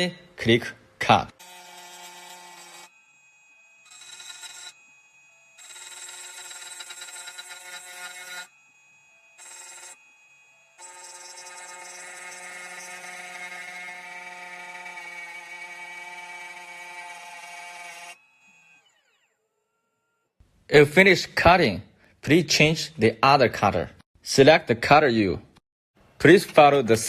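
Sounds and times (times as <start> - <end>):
key cutting machine motor whining: 1.4 - 19.8.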